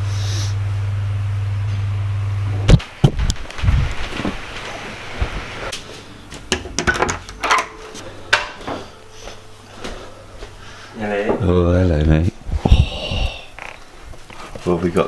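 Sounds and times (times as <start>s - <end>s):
faint steady hum: 0.0s - 15.0s
clinks and knocks of pans: 6.5s - 8.7s.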